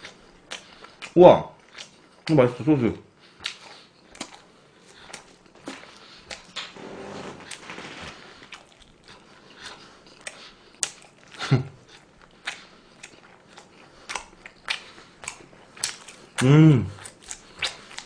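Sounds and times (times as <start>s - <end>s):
man chewing food: 0.0s - 18.0s
man murmuring: 2.3s - 3.1s, 16.4s - 17.0s.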